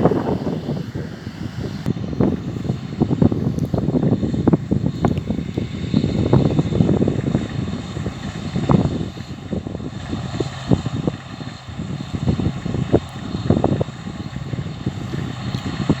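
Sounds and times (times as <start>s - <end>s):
farm machinery running: 0.0s - 16.0s
wind buffeting microphone: 0.0s - 16.0s.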